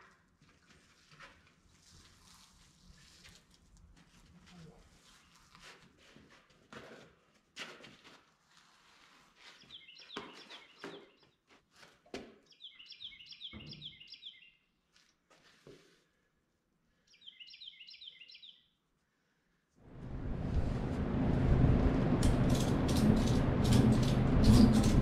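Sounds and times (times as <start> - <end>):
knocks and scuffs of tractor tire: 5.1 - 8.3
songbird chirping: 9.6 - 11.3, 12.5 - 14.7, 17.1 - 18.8.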